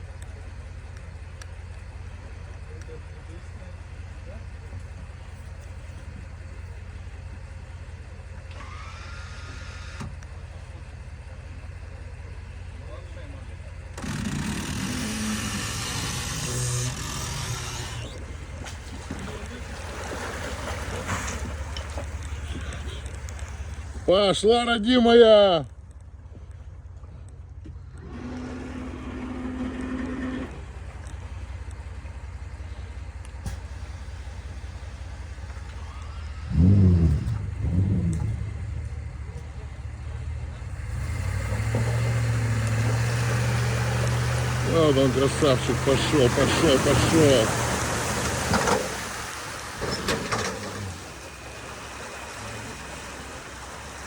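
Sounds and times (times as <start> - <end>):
vehicle engine humming: 0.0 - 54.0
small electric motor whining: 8.5 - 10.1, 14.0 - 18.2, 28.0 - 30.6.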